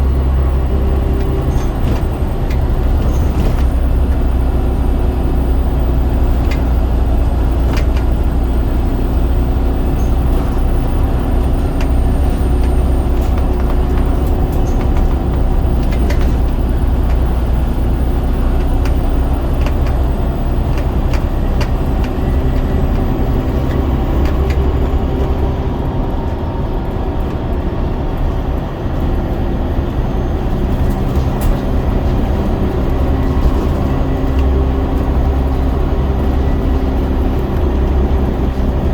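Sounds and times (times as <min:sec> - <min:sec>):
bodywork rattles and clicks: 0:00.0 - 0:38.9
bus diesel engine droning: 0:00.0 - 0:38.9.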